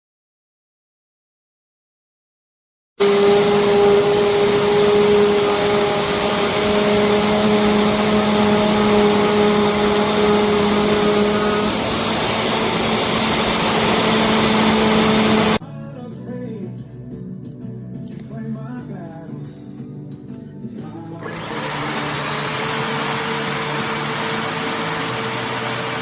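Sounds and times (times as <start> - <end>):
vacuum cleaner running: 3.0 - 15.6, 21.2 - 26.0.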